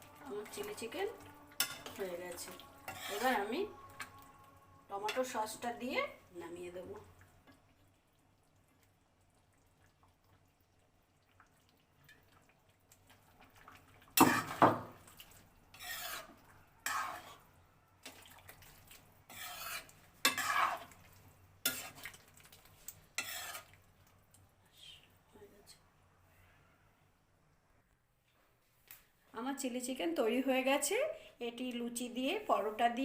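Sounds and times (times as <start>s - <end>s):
spoon stirring and scraping a pan: 0.0s - 6.3s, 7.0s - 24.2s.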